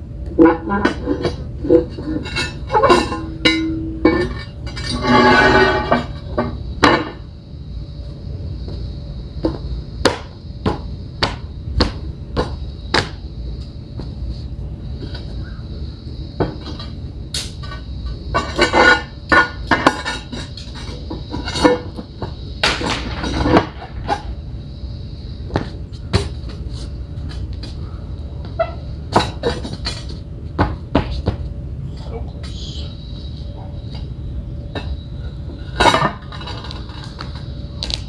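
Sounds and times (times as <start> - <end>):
clattering and scraping hard material: 0.3 - 7.2, 16.3 - 24.4, 25.5 - 31.4, 34.8 - 38.0.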